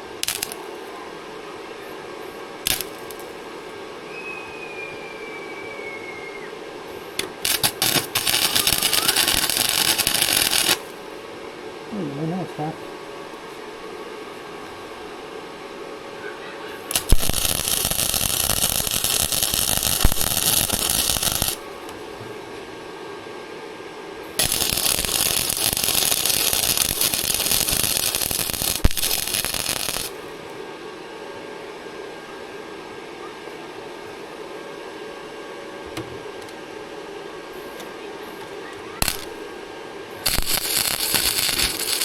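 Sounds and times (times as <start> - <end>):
arc welder crackling: 0.0 - 0.8, 2.6 - 3.4, 7.2 - 11.0, 16.8 - 22.0, 24.3 - 30.3, 39.0 - 39.5, 40.2 - 42.0.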